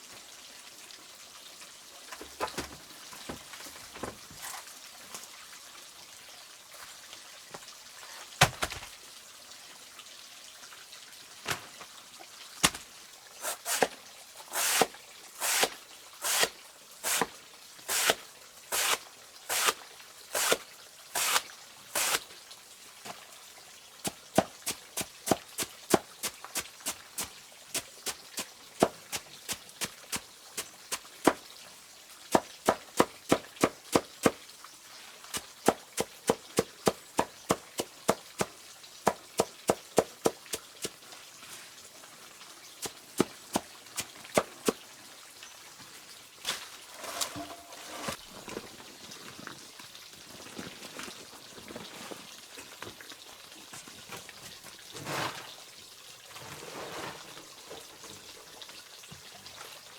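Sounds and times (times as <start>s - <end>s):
even scraping strokes: 46.8s - 48.2s.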